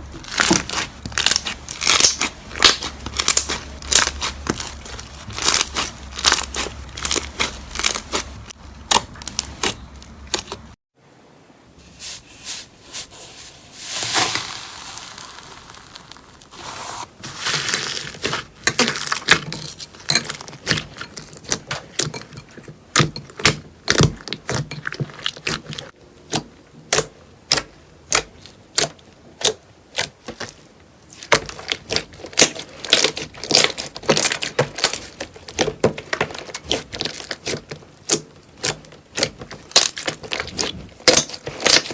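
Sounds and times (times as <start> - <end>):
slime crackling and popping: 0.2 - 10.7, 14.0 - 19.4, 31.2 - 41.9.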